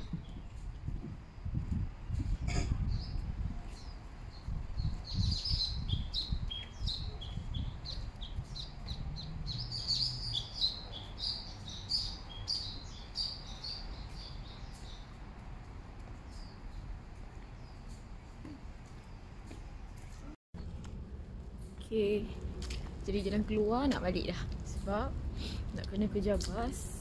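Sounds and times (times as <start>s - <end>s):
birds chirping: 2.8s - 19.5s
low rumble: 20.6s - 27.0s.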